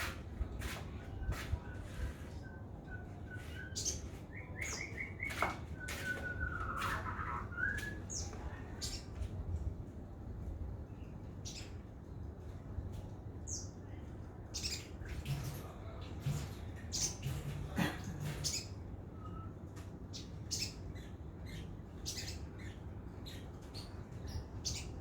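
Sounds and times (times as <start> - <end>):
songbird chirping: 1.2 - 9.2.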